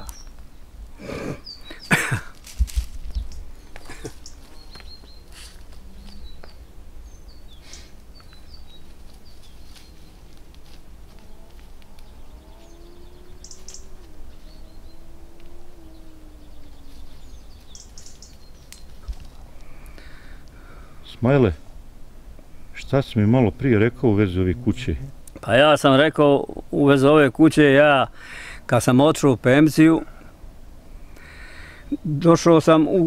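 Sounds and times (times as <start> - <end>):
small birds chirping: 0.0 - 28.8
rustles: 0.0 - 33.0
steady low rumble: 1.9 - 25.5
faint hum shifting in pitch: 2.7 - 25.3.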